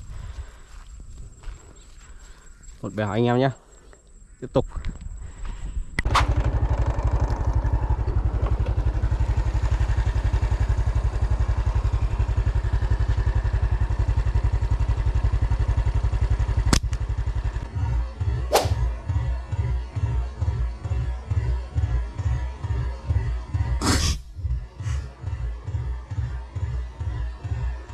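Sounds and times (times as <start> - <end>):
small motorcycle engine running: 6.1 - 23.9, 24.8 - 27.9
sharp clicks: 16.7 - 17.0.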